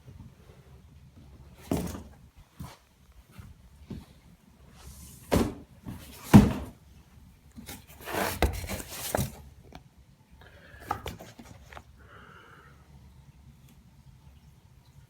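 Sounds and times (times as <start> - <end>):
knocks and thuds on boxes: 1.6 - 2.1, 5.3 - 6.8.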